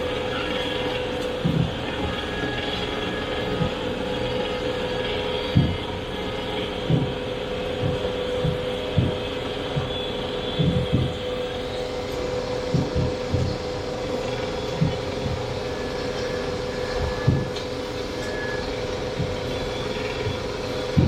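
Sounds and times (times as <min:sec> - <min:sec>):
boat engine droning: 0:00.0 - 0:21.0
low thuds: 0:01.4 - 0:02.2, 0:05.5 - 0:21.0.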